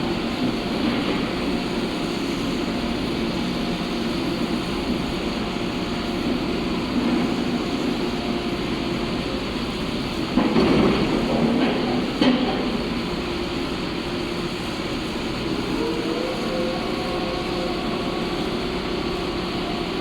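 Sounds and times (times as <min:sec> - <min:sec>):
drilling rig droning: 0:14.3 - 0:20.0.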